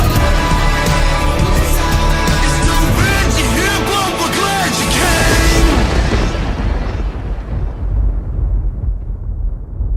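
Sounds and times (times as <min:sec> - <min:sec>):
deep rumbling noise: 0:04.8 - 0:09.9.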